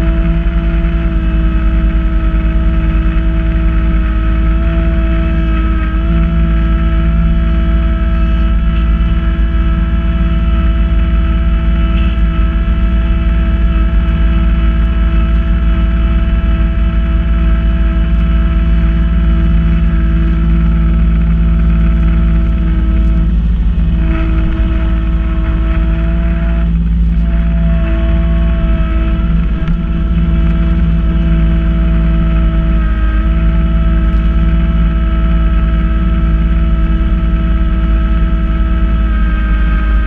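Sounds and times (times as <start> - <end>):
snow blower whine: 0.0 - 40.0
tractor diesel engine droning: 0.0 - 40.0.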